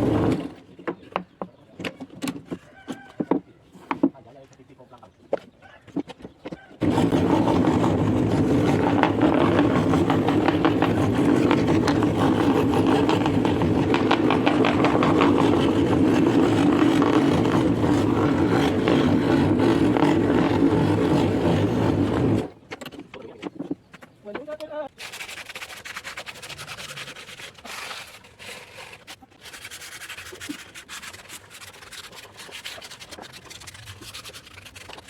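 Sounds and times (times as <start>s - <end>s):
scroll saw running: 6.8s - 22.5s.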